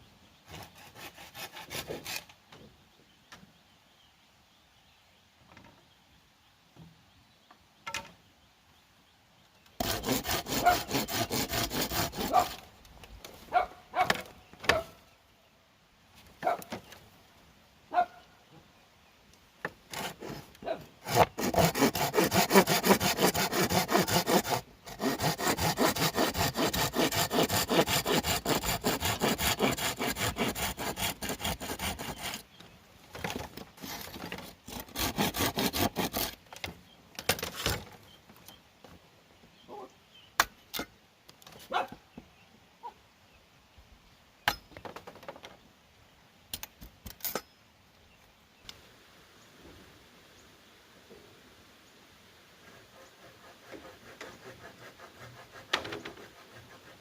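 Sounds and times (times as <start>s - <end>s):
saw cutting bamboo: 0.5s - 2.3s, 9.8s - 12.7s, 19.9s - 32.6s, 33.2s - 36.4s, 52.6s - 57.0s.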